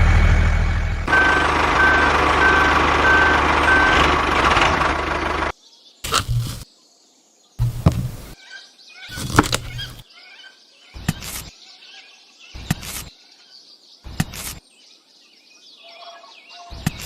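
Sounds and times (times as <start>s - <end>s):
birds chirping: 5.4s - 17.0s.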